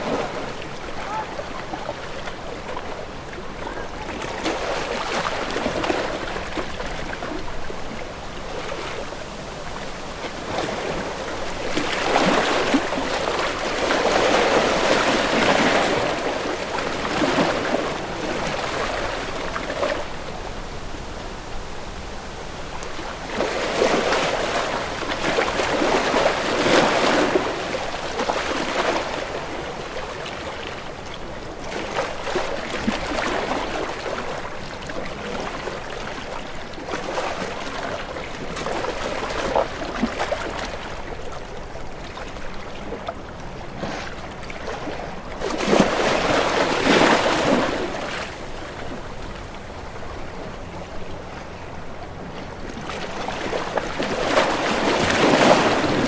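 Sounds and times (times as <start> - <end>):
sea waves washing: 0.0 - 30.6, 45.4 - 56.0.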